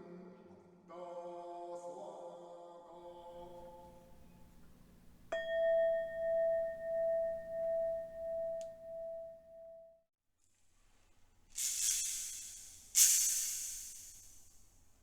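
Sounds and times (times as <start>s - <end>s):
bowl bell ringing: 3.4s - 10.0s.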